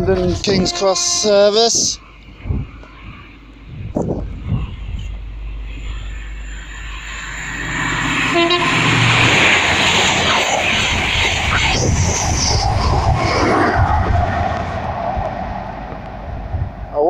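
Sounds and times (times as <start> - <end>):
express train passing at speed: 0.0 - 17.0
train horn note: 0.2 - 1.8, 8.2 - 9.5.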